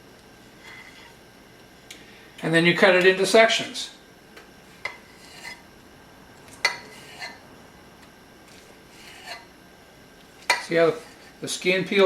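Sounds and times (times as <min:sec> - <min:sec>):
knife scraping a plate: 0:00.6 - 0:01.2, 0:04.8 - 0:05.7, 0:06.6 - 0:07.4, 0:08.5 - 0:09.5, 0:10.4 - 0:11.4.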